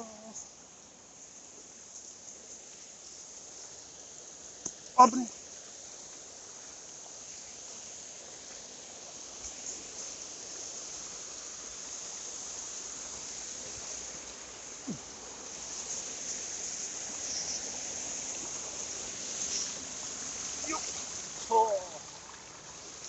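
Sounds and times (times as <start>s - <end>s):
insects buzzing: 0.0s - 23.0s
mountain stream rushing: 1.1s - 23.0s.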